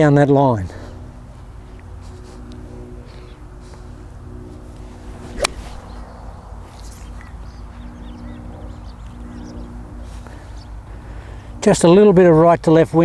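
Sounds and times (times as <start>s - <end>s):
golf club striking ball: 5.2s - 6.0s.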